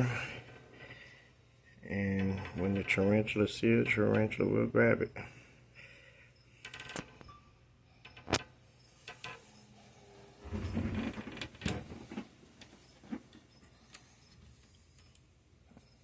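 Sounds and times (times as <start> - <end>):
rustling and knocking: 10.4 - 13.5.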